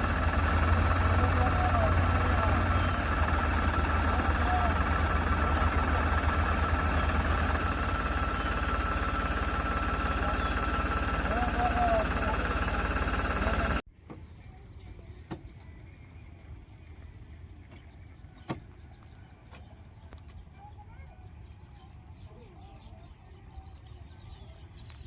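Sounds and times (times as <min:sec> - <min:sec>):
tractor engine running: 0:00.0 - 0:13.8
insects chirping: 0:00.0 - 0:25.0.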